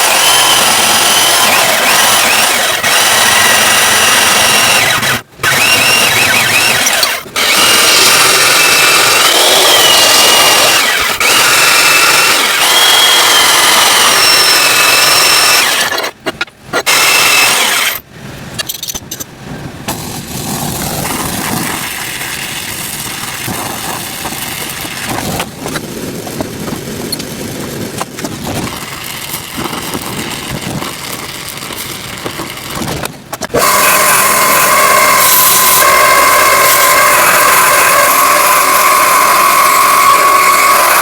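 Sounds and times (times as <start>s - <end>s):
small power tool running: 0.0s - 16.1s, 16.8s - 18.0s, 33.5s - 41.0s.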